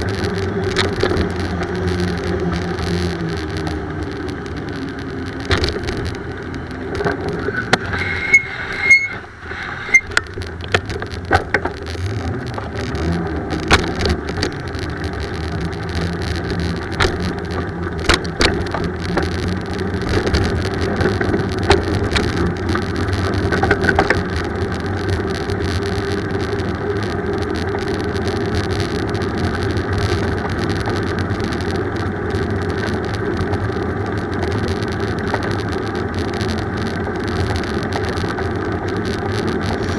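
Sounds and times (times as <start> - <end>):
bicycle road rumble: 0.0 - 39.9
wind noise: 0.0 - 39.9
sharp clicks and knocks: 0.3 - 4.4, 5.0 - 26.6
high squeal: 7.4 - 10.1.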